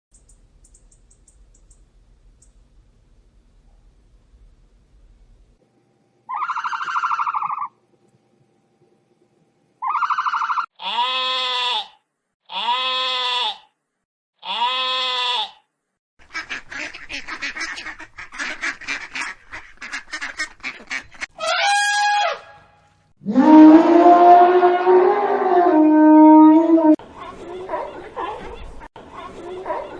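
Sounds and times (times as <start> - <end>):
quick chattering calls: 6.3 - 7.7
animal calls: 6.3 - 7.8, 9.8 - 13.7.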